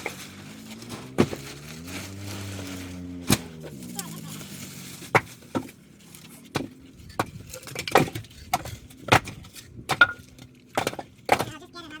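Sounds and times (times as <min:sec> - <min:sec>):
firewood knocking together: 0:05.1 - 0:05.8, 0:06.5 - 0:11.6.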